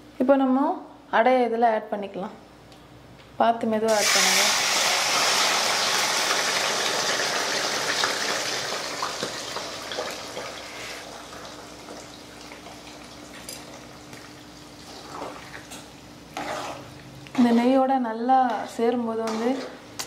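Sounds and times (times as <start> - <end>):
food sizzling in hot ghee: 3.9 - 13.2.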